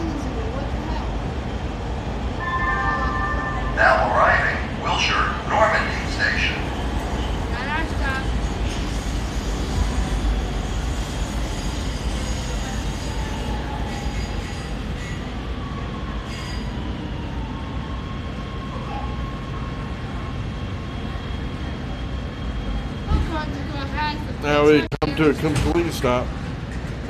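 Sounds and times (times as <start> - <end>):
train wheels rumbling on track: 0.0 - 27.0
faint high squeal: 11.6 - 17.2.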